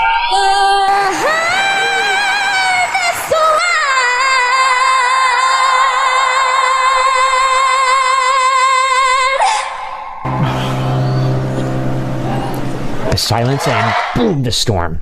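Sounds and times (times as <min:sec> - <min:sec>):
woman singing with vibrato: 0:00.0 - 0:12.0.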